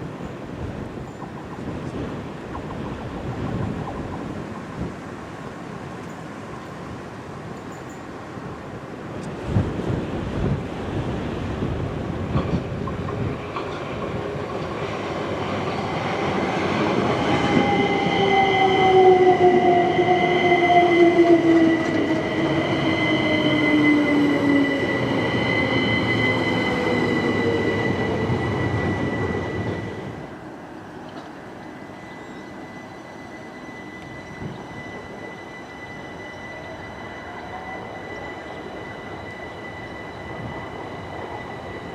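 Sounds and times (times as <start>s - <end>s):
train wheels rumbling on rails: 0.0s - 41.9s
train motor whine: 31.3s - 41.9s.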